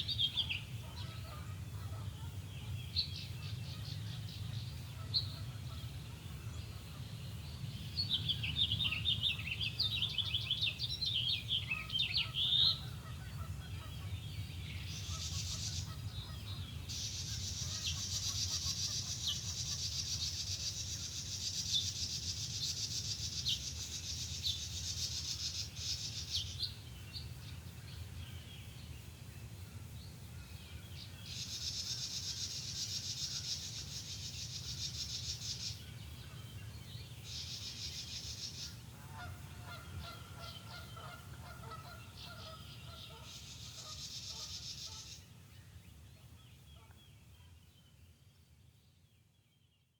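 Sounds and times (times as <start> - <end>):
chattering birdsong: 0.0 - 49.9.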